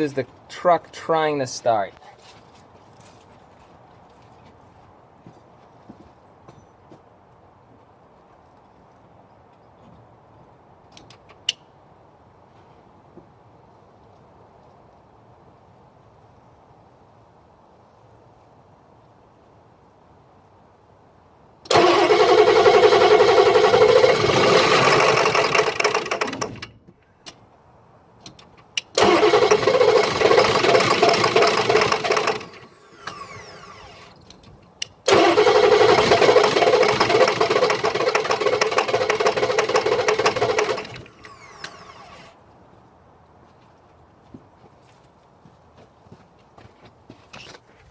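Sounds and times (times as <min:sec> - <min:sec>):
engine cranking on starter: 0:21.7 - 0:26.9, 0:28.8 - 0:42.4.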